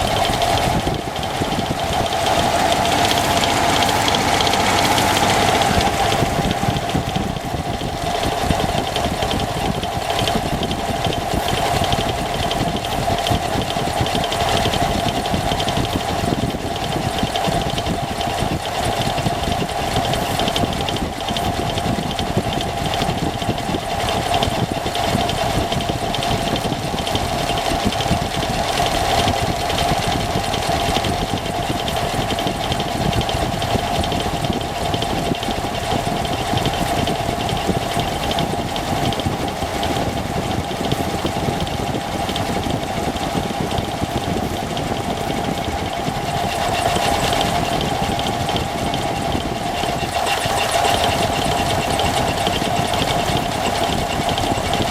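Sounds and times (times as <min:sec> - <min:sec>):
mid-pitched whine: 0:00.0 - 0:15.5
engine running with ticking: 0:00.0 - 0:54.9.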